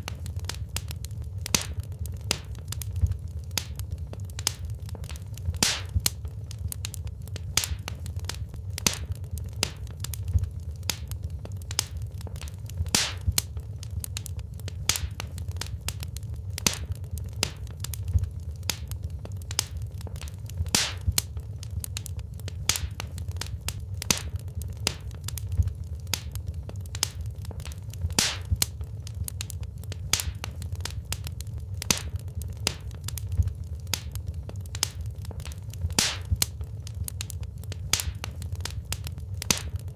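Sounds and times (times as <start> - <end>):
burning logs crackling and popping: 0.0 - 39.9
low rumble of flames: 0.0 - 39.9.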